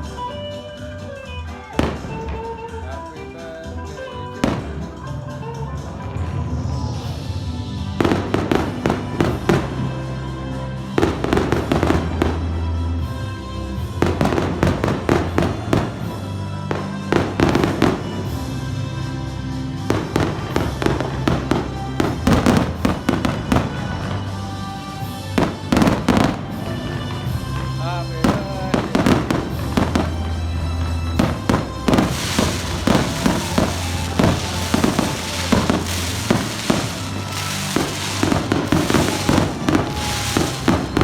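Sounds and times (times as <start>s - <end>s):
fireworks crackling and popping: 1.4s - 5.3s, 6.1s - 10.2s, 13.8s - 41.0s
music with bass line: 27.3s - 41.0s.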